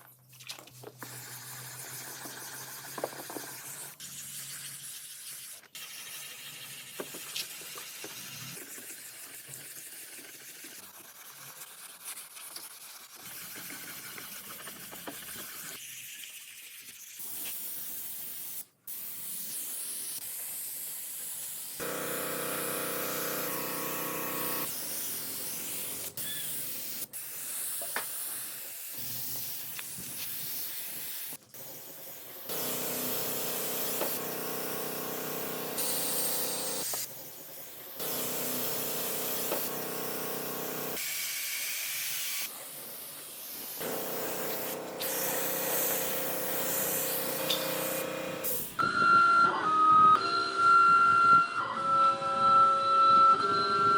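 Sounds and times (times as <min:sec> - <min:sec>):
hissing spray: 0:23.1 - 0:48.8.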